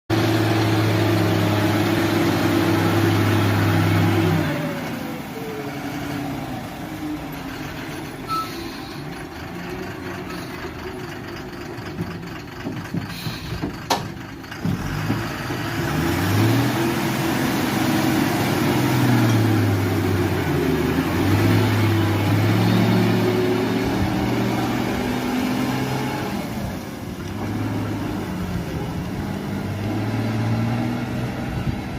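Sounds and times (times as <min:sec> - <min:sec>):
diesel truck engine revving: 0:00.1 - 0:31.9.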